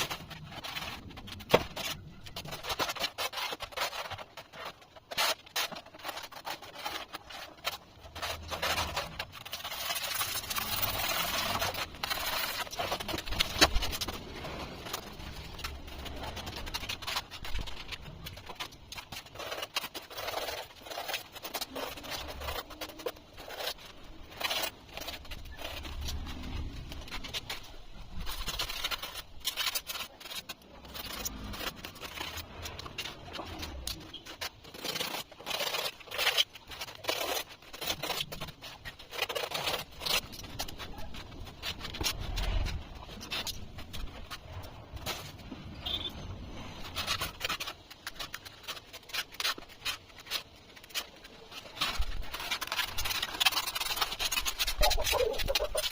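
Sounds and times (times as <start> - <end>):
scraping polystyrene foam: 0.0 - 55.9.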